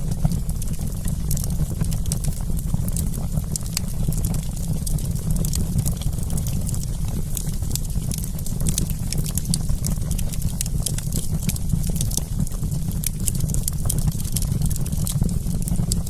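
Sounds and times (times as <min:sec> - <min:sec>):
steady low rumble: 0:00.0 - 0:08.2
campfire crackling: 0:00.0 - 0:16.0.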